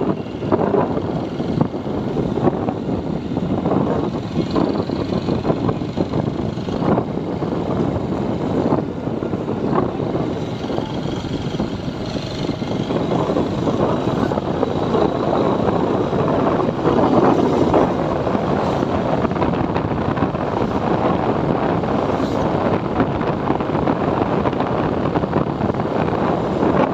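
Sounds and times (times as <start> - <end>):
wind rushing over microphone: 0.0 - 26.9
motorcycle engine running: 9.6 - 21.5.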